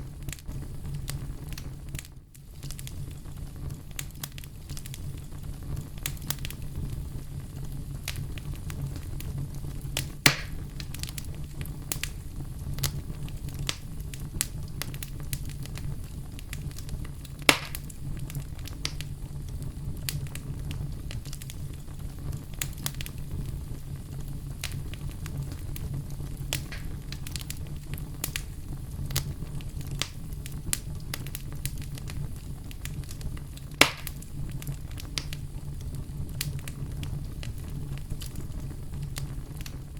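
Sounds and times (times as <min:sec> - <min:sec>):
campfire crackling: 0:00.0 - 0:39.9
loud wood pops: 0:10.3 - 0:10.6, 0:17.4 - 0:17.9, 0:26.6 - 0:27.4, 0:33.8 - 0:34.2.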